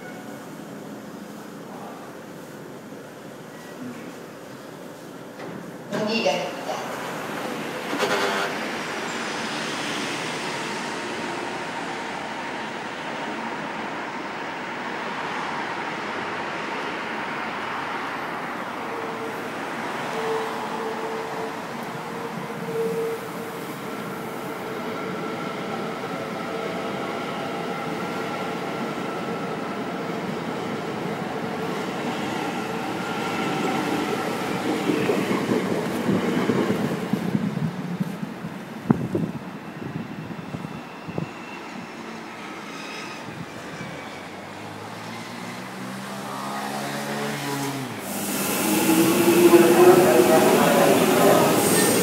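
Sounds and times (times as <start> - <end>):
electric train rumbling: 4.4 - 52.0
road traffic noise: 42.3 - 52.0.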